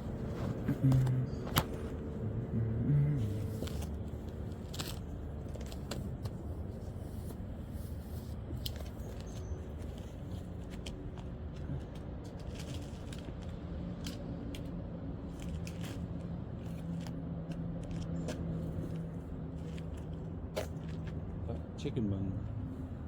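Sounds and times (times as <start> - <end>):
low motor hum: 0.0 - 6.7.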